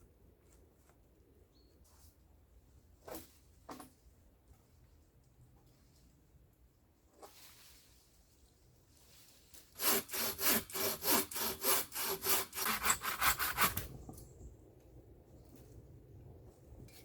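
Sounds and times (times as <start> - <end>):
hand saw cutting wood: 9.7 - 13.9.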